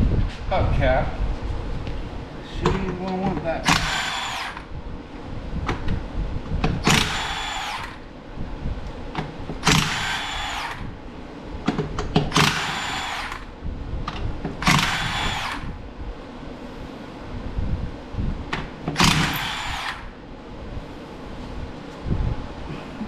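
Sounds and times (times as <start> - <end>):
impact wrench bursts: 3.6 - 4.8, 6.8 - 8.1, 9.6 - 11.0, 12.2 - 13.6, 14.6 - 15.8, 18.8 - 20.2.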